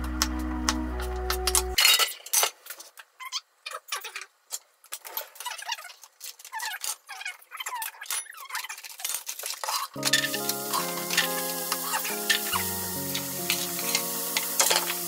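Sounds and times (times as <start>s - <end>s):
frying pan clinking on stove grate: 14.6s - 15.0s.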